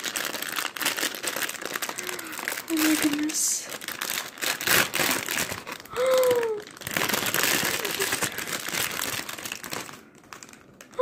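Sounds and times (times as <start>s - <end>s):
packaging crinkling and tearing: 0.0s - 11.0s
person saying ooh: 6.0s - 6.7s.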